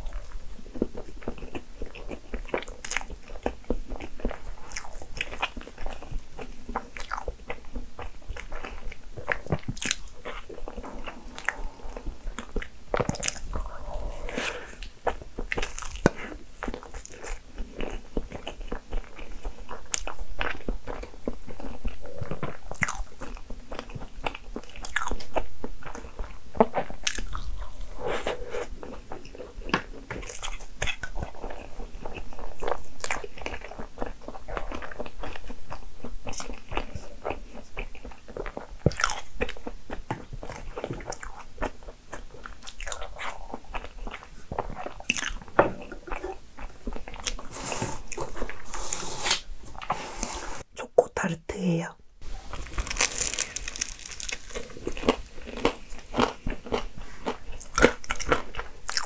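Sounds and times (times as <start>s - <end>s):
biting and chewing cake: 0.0s - 49.9s, 52.2s - 59.0s.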